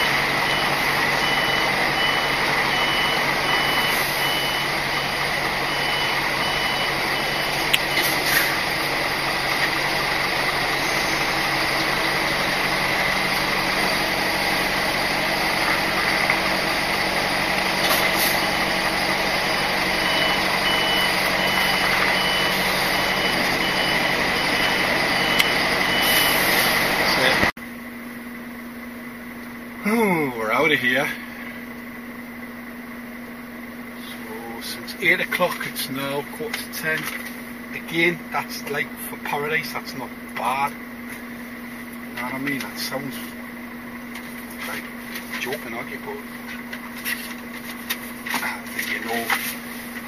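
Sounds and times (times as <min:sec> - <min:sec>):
reversing alarm beeping: 0:00.0 - 0:27.5
diesel engine running: 0:00.0 - 0:50.0
steady whine: 0:00.0 - 0:50.0.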